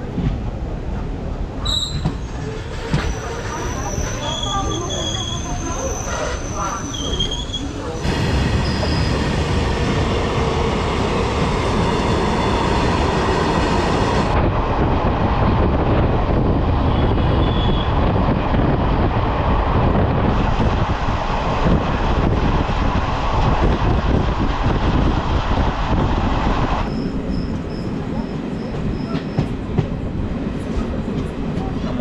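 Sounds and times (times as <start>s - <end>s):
train wheels rumbling on rails: 0.0s - 32.0s
faint high squealing: 1.6s - 7.9s.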